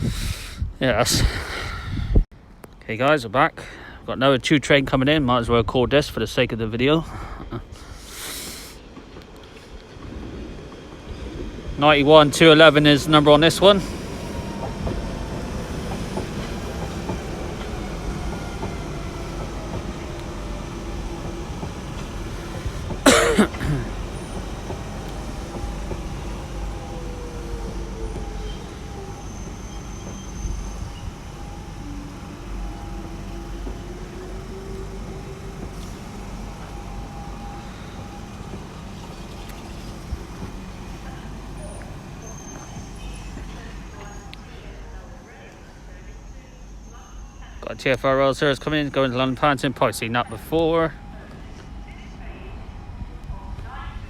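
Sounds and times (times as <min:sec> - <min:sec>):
train rumbling: 0:00.0 - 0:54.0
train motor whine: 0:12.5 - 0:44.4.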